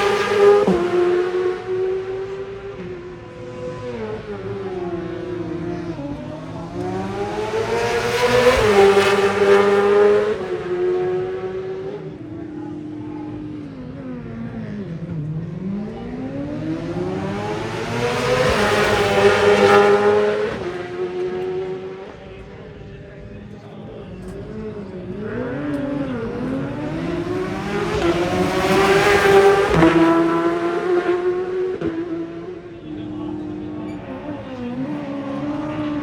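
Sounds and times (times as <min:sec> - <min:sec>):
racing motorcycles accelerating past: 0:05.3 - 0:12.2, 0:15.8 - 0:22.1, 0:25.1 - 0:36.0.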